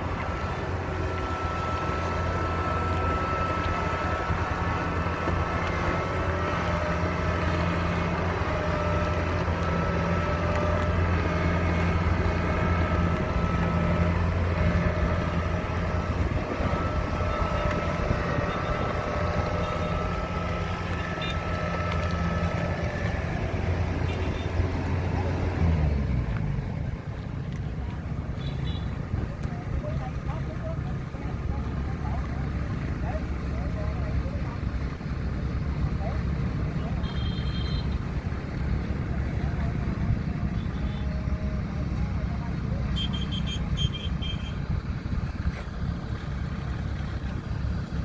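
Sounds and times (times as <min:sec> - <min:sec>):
high steady whine: 0:00.0 - 0:24.5
diesel engine droning: 0:00.0 - 0:48.0.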